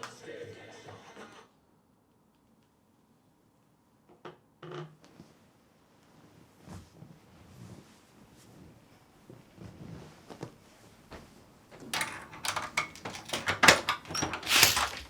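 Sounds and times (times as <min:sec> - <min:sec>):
door lock clicks and rattles: 0:12.0 - 0:15.0.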